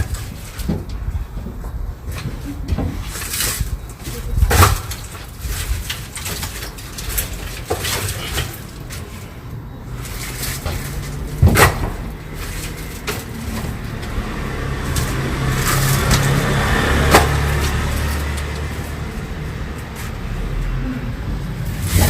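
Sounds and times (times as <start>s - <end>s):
vehicle running hum: 7.0s - 22.0s.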